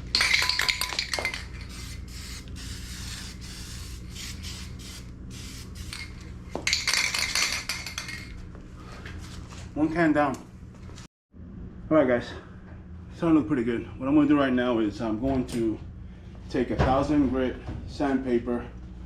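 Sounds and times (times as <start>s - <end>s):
steady low hum: 0.0s - 19.0s
spray paint can hissing: 1.6s - 6.1s.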